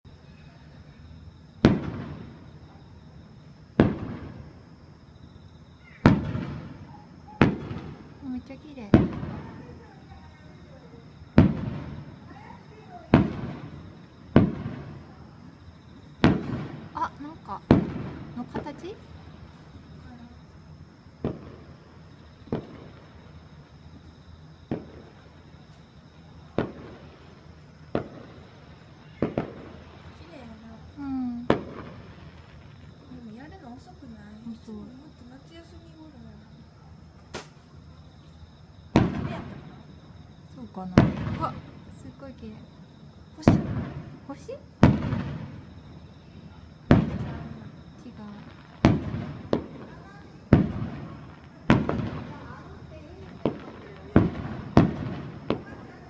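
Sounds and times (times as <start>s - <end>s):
fireworks booming: 0.0s - 56.0s
firework shells bursting: 6.0s - 9.8s, 11.3s - 15.3s, 16.2s - 19.8s, 21.2s - 21.8s, 27.9s - 30.2s, 37.2s - 37.8s, 43.4s - 56.0s.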